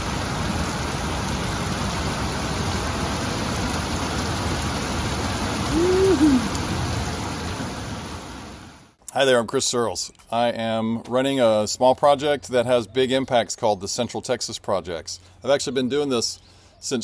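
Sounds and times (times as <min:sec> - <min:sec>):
heavy rain: 0:00.0 - 0:09.0
low hoot-like tone: 0:05.7 - 0:06.6.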